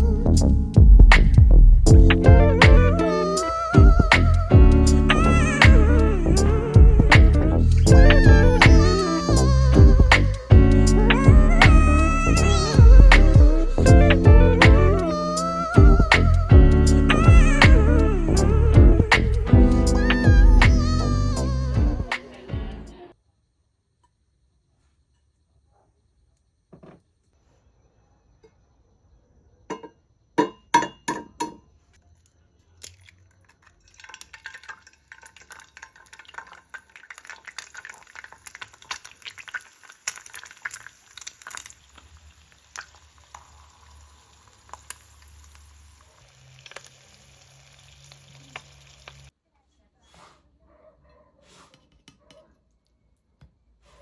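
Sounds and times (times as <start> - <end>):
cookware clatter: 29.7 - 31.6
utensils knocking: 29.7 - 31.6
crackling sizzle: 32.7 - 49.3.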